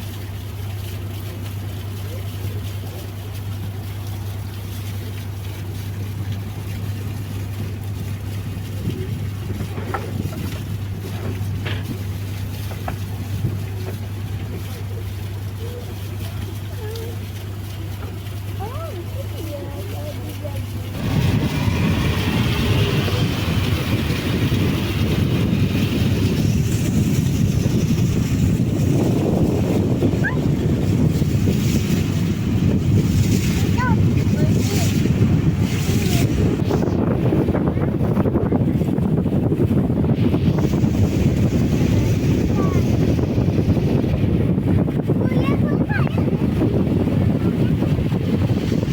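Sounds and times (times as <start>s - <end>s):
boat engine droning: 0.0s - 48.9s
water wash: 0.0s - 48.9s
wind noise: 7.0s - 14.6s, 20.9s - 48.9s.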